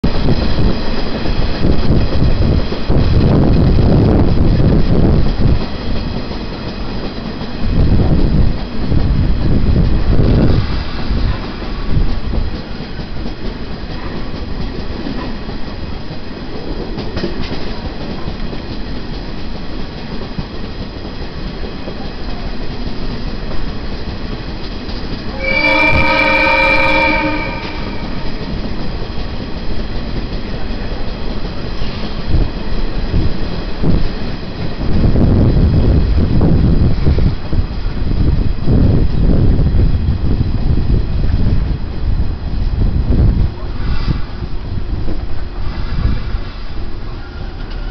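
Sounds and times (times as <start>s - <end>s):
train rumbling on track: 0.0s - 47.9s
train horn blast: 25.3s - 28.5s.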